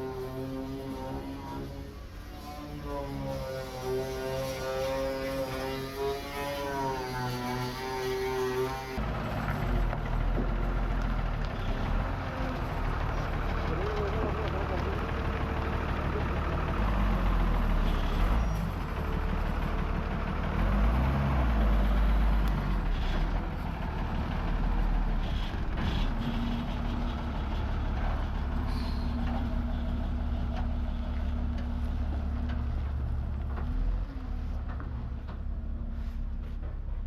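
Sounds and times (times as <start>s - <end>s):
bus engine rumble: 8.9s - 37.0s.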